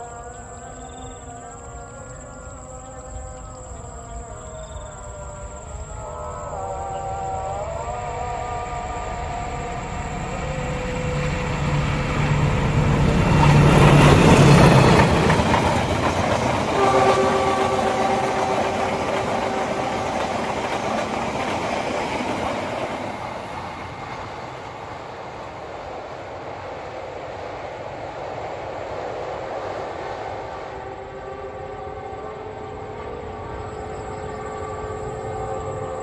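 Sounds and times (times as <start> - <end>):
train horn: 0.0 - 23.0, 30.6 - 36.0
wheels rushing on rail: 3.0 - 36.0
locomotive engine: 6.3 - 29.6.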